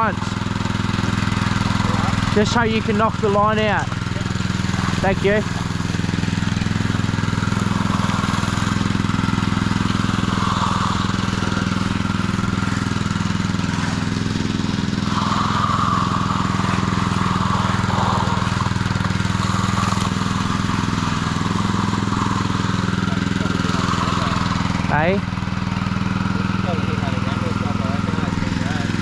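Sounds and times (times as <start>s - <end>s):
power trowel engine running: 0.0s - 29.0s.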